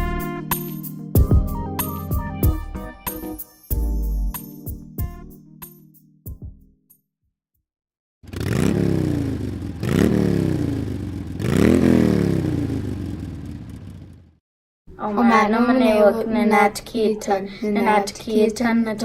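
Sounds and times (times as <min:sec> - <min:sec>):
engine revving: 0:08.2 - 0:14.3.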